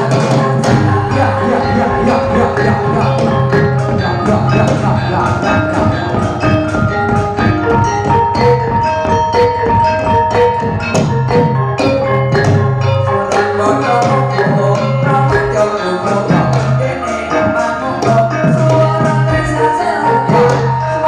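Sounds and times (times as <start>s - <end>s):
bronze metallophones ringing: 0.0s - 21.0s.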